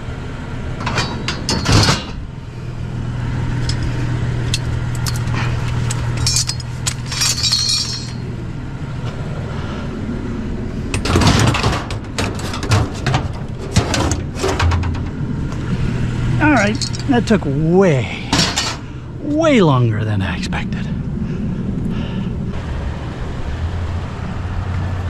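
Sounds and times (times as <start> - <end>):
steady low hum: 0.0 - 25.0
scrap items clinking and clattering: 5.0 - 8.2, 11.0 - 15.0, 16.6 - 17.1.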